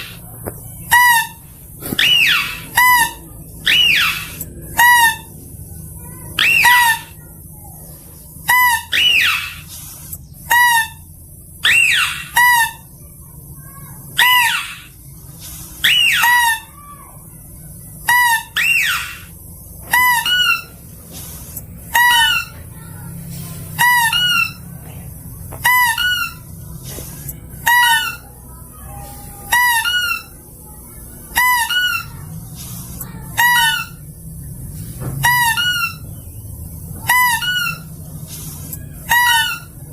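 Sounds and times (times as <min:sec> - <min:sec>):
falling squeals: 0:00.8 - 0:05.4, 0:06.0 - 0:07.3, 0:08.5 - 0:09.8, 0:10.5 - 0:13.0, 0:13.7 - 0:17.3, 0:18.0 - 0:24.8, 0:25.6 - 0:27.0, 0:27.6 - 0:34.1, 0:35.2 - 0:36.3, 0:36.9 - 0:39.9.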